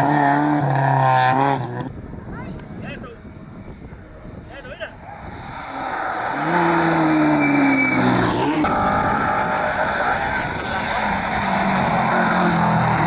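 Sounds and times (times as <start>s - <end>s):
rally car engine at high revs: 0.0s - 2.0s, 5.1s - 13.0s.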